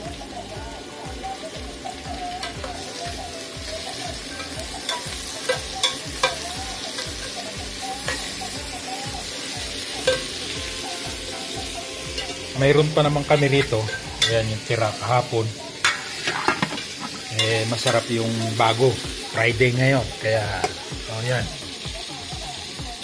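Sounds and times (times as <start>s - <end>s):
vegetables sizzling in a pot: 0.0s - 23.0s
metal spoon clinking on pot: 4.4s - 7.4s, 10.0s - 10.4s, 12.2s - 12.5s, 13.4s - 14.4s.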